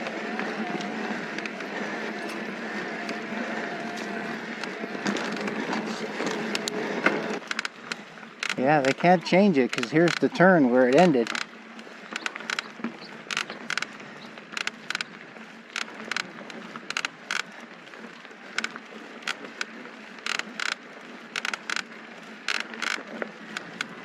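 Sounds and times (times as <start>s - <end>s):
bike clicks and rattles: 0.0s - 24.0s.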